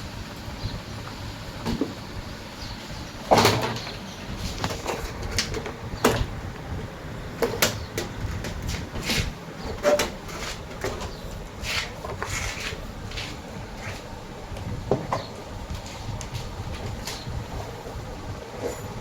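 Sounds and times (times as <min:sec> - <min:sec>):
tools and parts clattering: 0:03.3 - 0:06.4, 0:07.4 - 0:14.0, 0:18.5 - 0:19.0.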